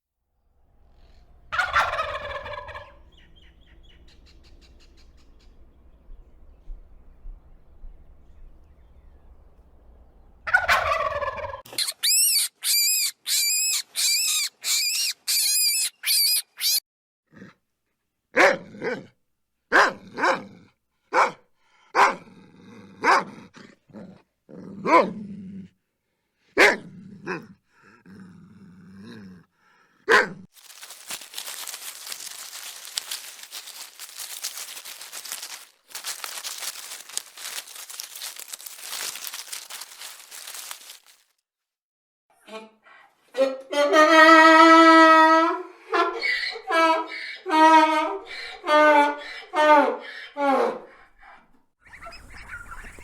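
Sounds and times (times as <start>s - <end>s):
falling animal cry: 11.7s - 16.8s
dog barking: 18.4s - 19.1s, 19.7s - 22.3s, 23.0s - 23.4s, 24.8s - 25.2s, 26.6s - 27.5s, 30.1s - 30.5s
steady rustling: 30.6s - 41.2s.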